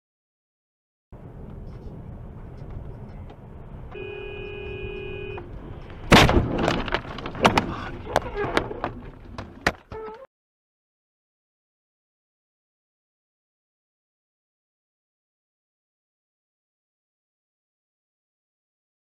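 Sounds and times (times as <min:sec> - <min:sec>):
car engine and road noise: 0:01.1 - 0:10.2
car horn: 0:03.9 - 0:05.5
loud crash impact: 0:06.1 - 0:07.7
banging and clattering: 0:06.1 - 0:10.0.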